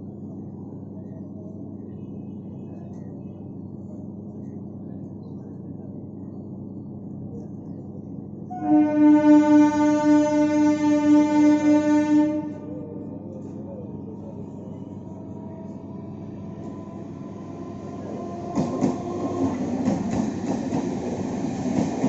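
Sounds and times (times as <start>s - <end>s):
train rumbling: 0.0s - 22.0s
train horn: 8.5s - 12.8s.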